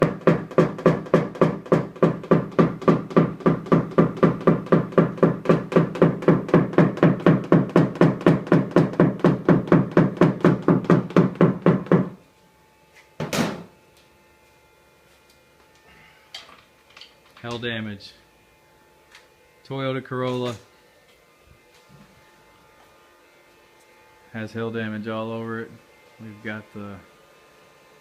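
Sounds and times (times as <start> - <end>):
sharp knock: 0.0 - 12.1
tapping on metal car panel: 0.0 - 12.2.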